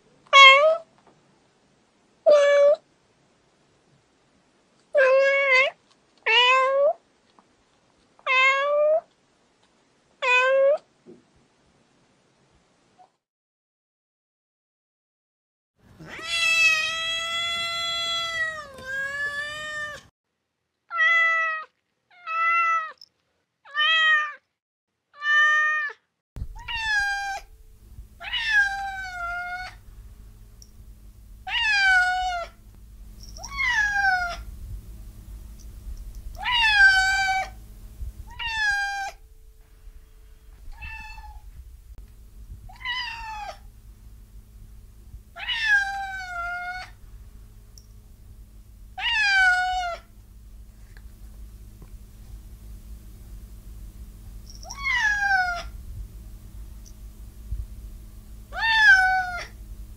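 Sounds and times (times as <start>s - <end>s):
kitten meowing: 16.0s - 20.0s, 25.2s - 27.6s, 28.2s - 29.8s, 31.4s - 32.6s, 33.4s - 34.5s, 36.3s - 37.6s, 38.3s - 39.2s, 40.6s - 41.5s, 42.7s - 43.7s, 45.4s - 47.0s, 49.0s - 50.1s, 54.6s - 55.7s, 58.5s - 59.6s
low steady hum: 26.4s - 59.9s.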